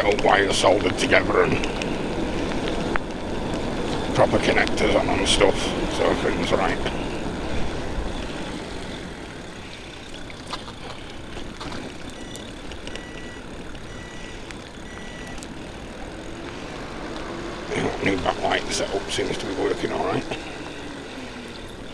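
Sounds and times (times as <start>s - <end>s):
wind and road noise: 0.0s - 21.9s
short high beeps: 12.1s - 15.5s.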